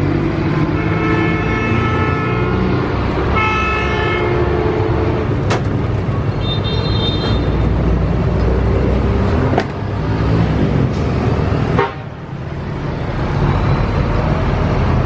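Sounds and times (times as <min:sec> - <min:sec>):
traffic engines running: 0:00.0 - 0:15.0
higher vehicle horn: 0:00.7 - 0:02.7, 0:03.3 - 0:05.0, 0:11.7 - 0:12.1
vehicle horn: 0:00.7 - 0:02.7, 0:03.3 - 0:04.9, 0:06.4 - 0:07.6, 0:11.7 - 0:12.1.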